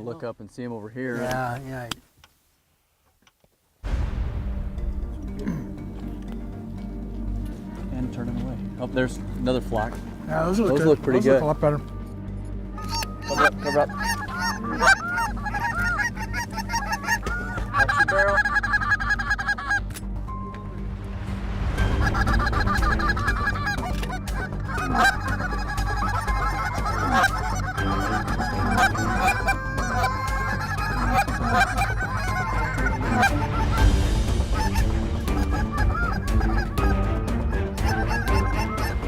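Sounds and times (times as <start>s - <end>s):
geese honking: 12.7s - 19.9s, 21.7s - 39.0s
goose calls blown: 12.8s - 19.8s, 22.1s - 33.9s.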